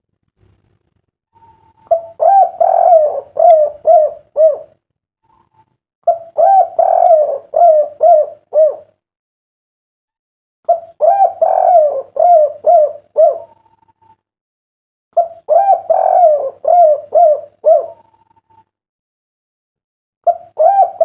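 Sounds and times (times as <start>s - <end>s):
dove cooing: 1.4s - 9.0s, 10.7s - 14.1s, 15.2s - 18.5s, 20.3s - 21.0s.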